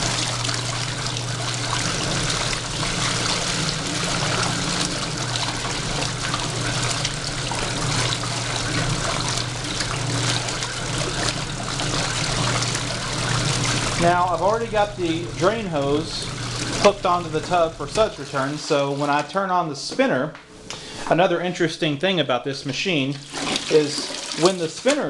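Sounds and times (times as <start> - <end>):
motor hum: 0.0 - 19.4
water churning in washer tub: 0.0 - 20.2, 21.0 - 25.0.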